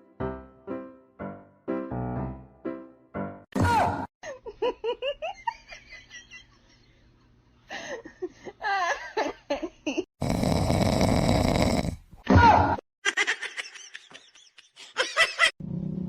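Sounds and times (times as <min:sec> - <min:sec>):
person giggling: 0:13.0 - 0:15.5.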